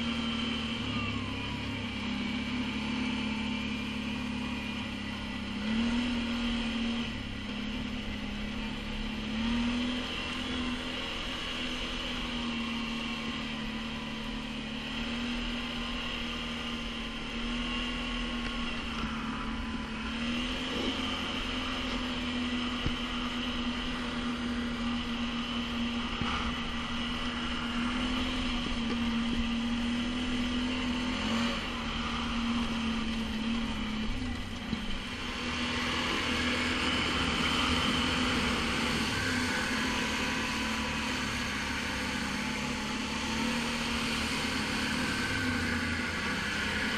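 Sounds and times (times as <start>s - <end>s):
atv engine running: 0.0s - 46.9s.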